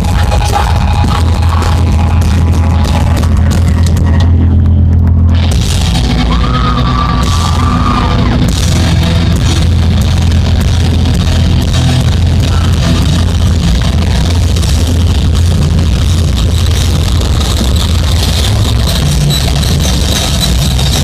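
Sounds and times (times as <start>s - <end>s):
heavy metal band playing live: 0.0s - 21.0s
shouted vocal: 6.1s - 8.5s.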